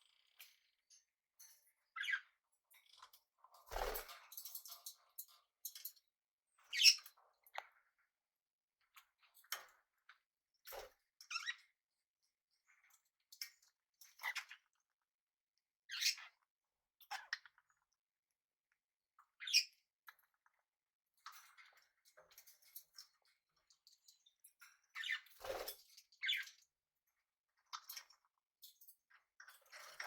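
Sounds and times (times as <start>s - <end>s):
parrots chirping and squawking: 2.0s - 2.3s.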